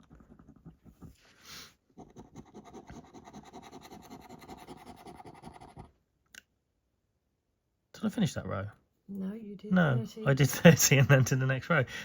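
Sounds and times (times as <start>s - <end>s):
scratch card being scratched: 0.0s - 6.0s.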